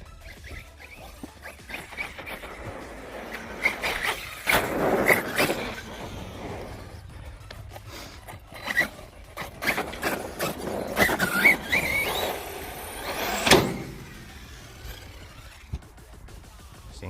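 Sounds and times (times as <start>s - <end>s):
toy truck electric motor whining: 0.0s - 16.2s
truck landing knocks and clatter: 8.5s - 15.5s.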